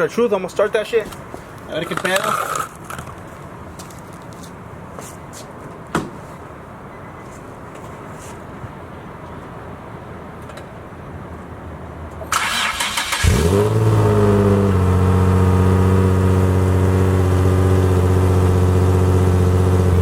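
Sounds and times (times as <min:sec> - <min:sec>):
car starter cranking: 0:12.3 - 0:14.1
car engine idling: 0:12.4 - 0:20.0.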